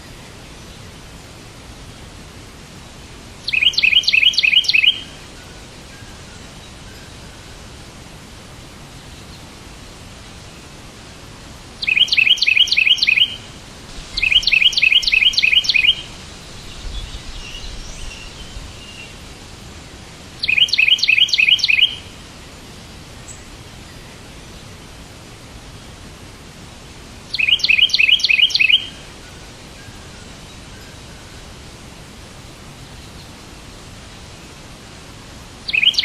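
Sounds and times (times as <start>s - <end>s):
steady background hiss: 0.0s - 36.0s
bird chirping rapidly: 3.4s - 5.2s, 11.8s - 19.1s, 20.4s - 22.1s, 27.3s - 29.0s, 35.7s - 36.0s
soft bird twittering: 3.4s - 7.2s, 11.8s - 19.2s, 20.4s - 22.1s, 27.3s - 31.3s, 35.7s - 36.0s.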